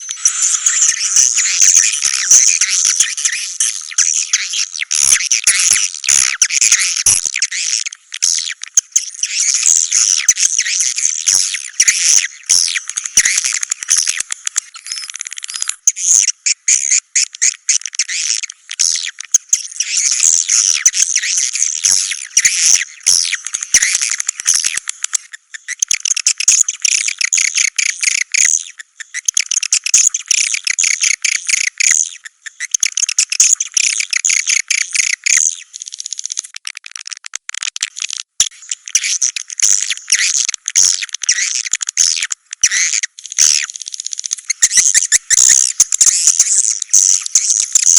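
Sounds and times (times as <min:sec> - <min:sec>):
high-pitched bird chirping: 0:00.0 - 0:17.3, 0:38.6 - 0:47.9.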